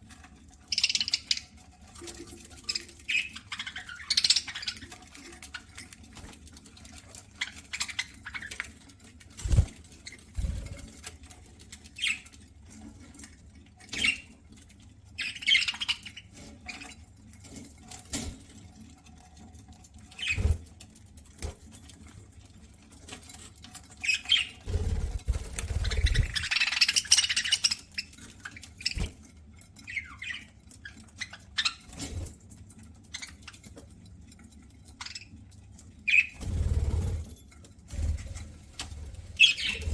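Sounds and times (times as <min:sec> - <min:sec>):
birds nibbling seeds: 0:24.0 - 0:27.8, 0:38.1 - 0:39.9
bird chirps and squawks: 0:24.2 - 0:27.8, 0:39.1 - 0:39.9.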